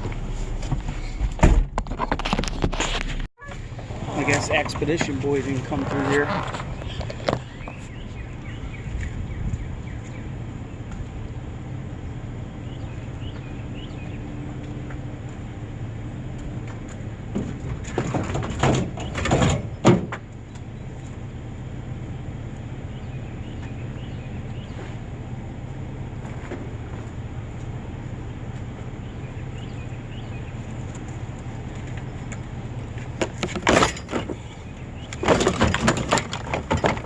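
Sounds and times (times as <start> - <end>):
clunks and rattles: 0.0 - 9.7, 16.3 - 21.2, 26.2 - 27.8, 29.6 - 37.0
small truck engine humming: 0.0 - 37.0.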